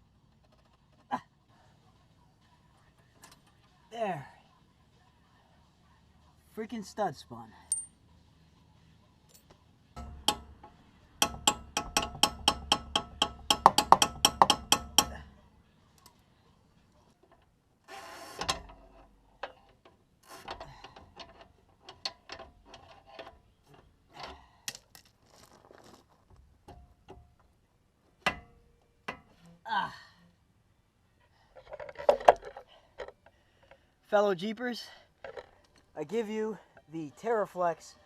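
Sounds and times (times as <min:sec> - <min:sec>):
metal tools clinking: 0:07.6 - 0:08.0.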